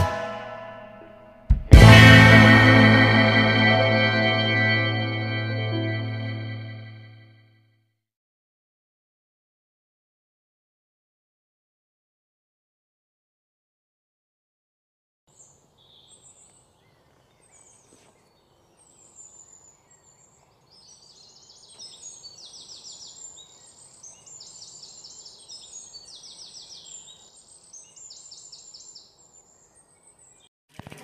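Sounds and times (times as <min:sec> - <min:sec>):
birds chirping and trilling: 0:15.3 - 0:30.5.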